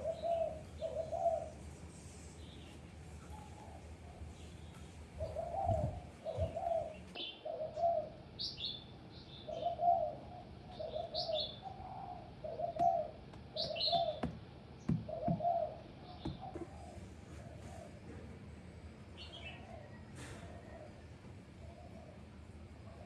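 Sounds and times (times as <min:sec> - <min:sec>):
bird cooing: 0:00.0 - 0:01.6, 0:05.2 - 0:08.3, 0:09.4 - 0:14.3, 0:14.9 - 0:18.4, 0:19.2 - 0:23.0
birds chirping: 0:00.0 - 0:01.6, 0:02.4 - 0:18.0, 0:19.1 - 0:21.0
soft thumps: 0:12.8 - 0:15.5, 0:16.2 - 0:16.8.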